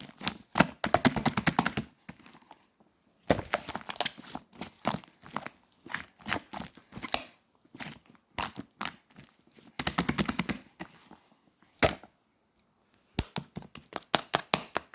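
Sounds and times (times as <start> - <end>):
slime squishing with sticky clicks: 3.6 - 11.0, 12.9 - 14.9.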